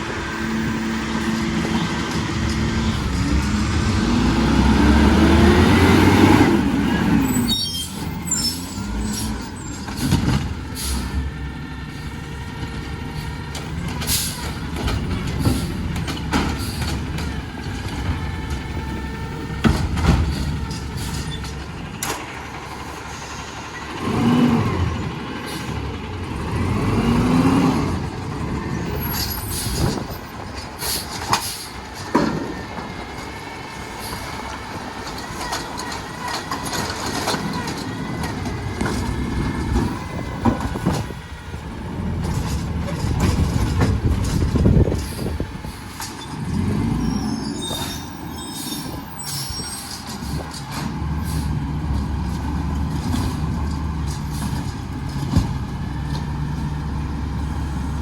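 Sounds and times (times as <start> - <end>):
diesel engine revving: 0.0 - 58.0
knocks and clanks: 12.6 - 22.4, 28.0 - 33.4, 34.0 - 46.7, 51.8 - 56.7.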